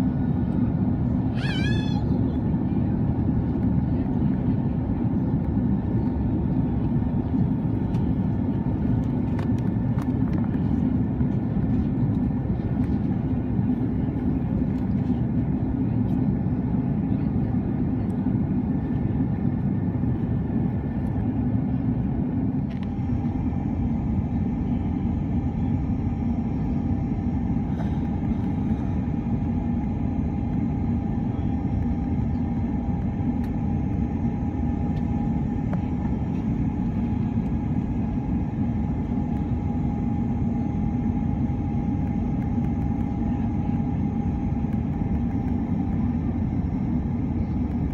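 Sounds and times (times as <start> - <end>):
jet engine cabin rumble: 0.0 - 47.9
mid-pitched whine: 19.4 - 47.9.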